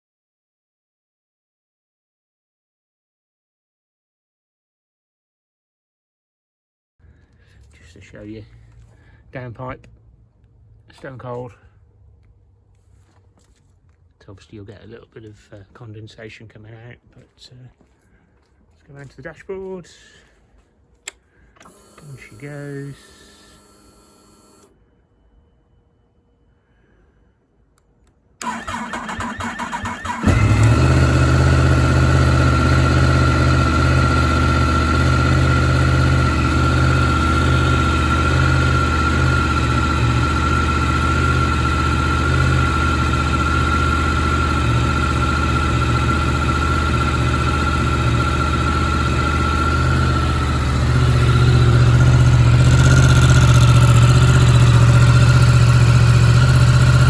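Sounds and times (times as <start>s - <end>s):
motorcycle starter cranking: 28.4s - 33.2s, 37.8s - 57.0s
motorcycle engine idling: 30.0s - 57.0s.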